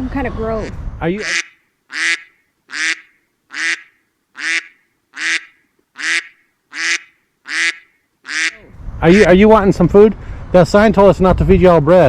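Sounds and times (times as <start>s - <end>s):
duck quacking: 1.2s - 8.7s.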